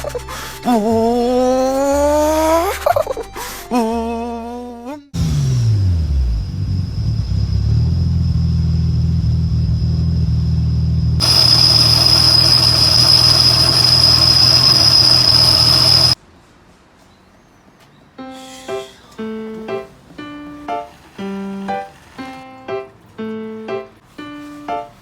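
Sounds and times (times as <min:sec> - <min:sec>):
car engine idling: 0:06.0 - 0:16.2
high whine: 0:06.4 - 0:16.2.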